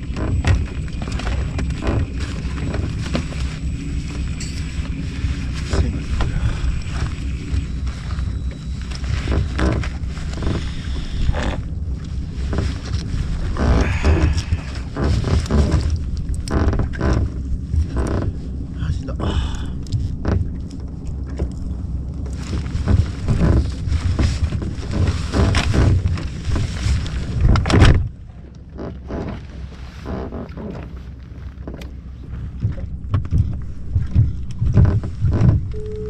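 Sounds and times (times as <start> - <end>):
wind buffeting microphone: 32.5 - 35.8.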